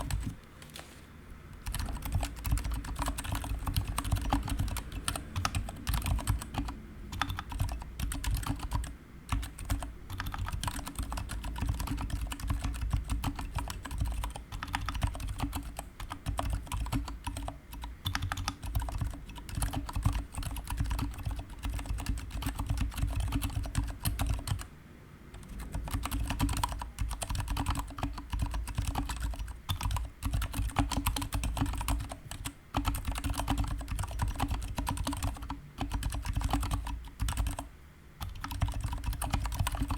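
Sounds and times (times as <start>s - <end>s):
mechanical keyboard typing: 0.0s - 0.4s, 1.6s - 24.7s, 25.3s - 39.9s.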